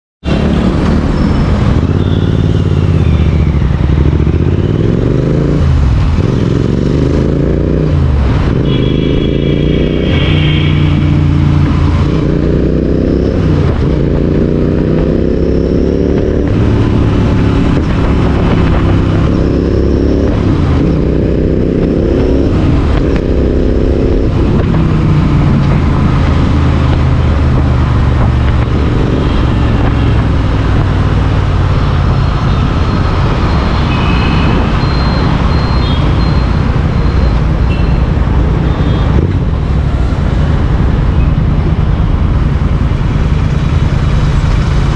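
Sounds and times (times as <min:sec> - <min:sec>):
motorcycle engine accelerating: 0:00.2 - 0:44.9.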